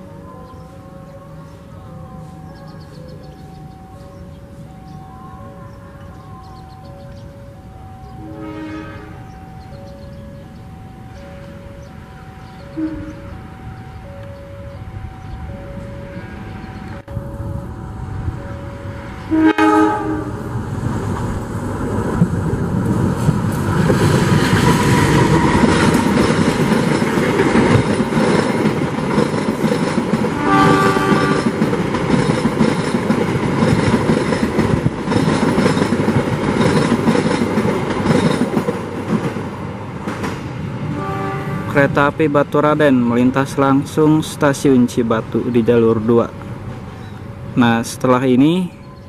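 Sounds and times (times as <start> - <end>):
train coaches rumbling over rails: 0.0 - 49.0
locomotive horn: 7.7 - 9.7, 10.4 - 17.6, 18.6 - 20.6, 30.3 - 31.7, 40.8 - 41.9.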